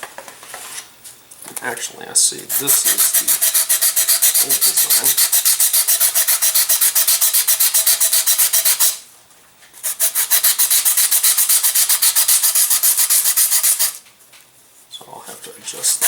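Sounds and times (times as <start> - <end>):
sandpaper scrubbing: 2.5 - 9.0, 9.8 - 14.0.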